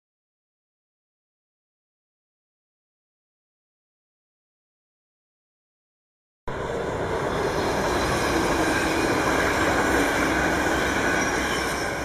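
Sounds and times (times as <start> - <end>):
electric train hum: 6.5 - 12.0
wheels rumbling on rail: 6.5 - 12.0.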